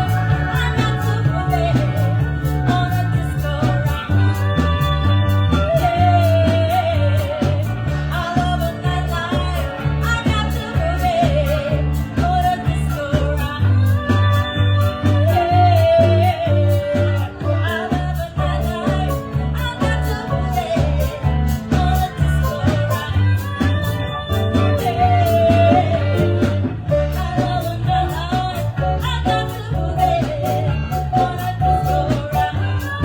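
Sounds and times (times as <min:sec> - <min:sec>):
person singing: 0:00.0 - 0:33.0
pulsing bass line: 0:00.0 - 0:33.0.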